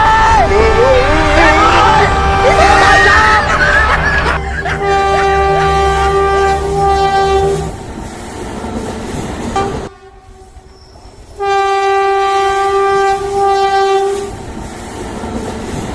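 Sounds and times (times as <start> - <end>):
train rumbling: 0.0 - 15.9
train horn blast: 0.6 - 7.8, 9.5 - 10.7, 11.4 - 14.4.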